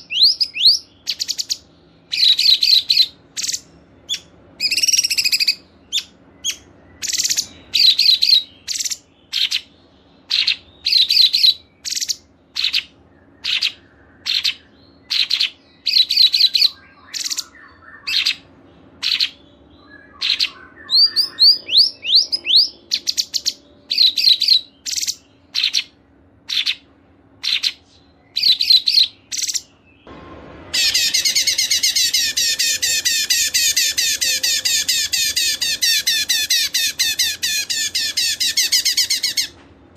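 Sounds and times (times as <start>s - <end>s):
songbird calling high notes: 0.0s - 29.8s, 30.7s - 39.6s
bird singing rapid high trill: 0.0s - 39.6s.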